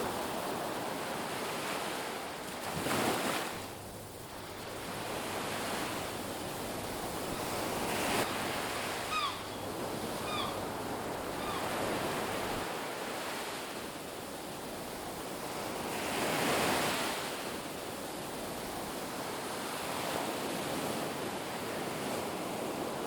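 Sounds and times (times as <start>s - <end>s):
ocean surf washing onto beach: 0.0s - 23.0s
bird short falling calls: 9.1s - 9.6s, 10.2s - 10.6s.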